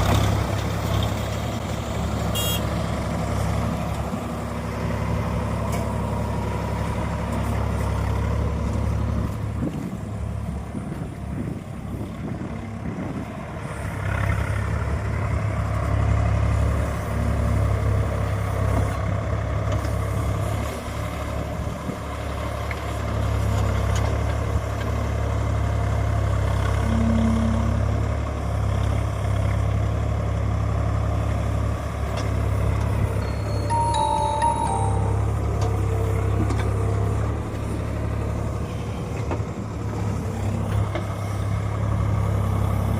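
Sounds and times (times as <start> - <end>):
tractor diesel engine running: 0.0 - 42.9
high-pitched tone: 26.8 - 28.0, 33.2 - 36.3.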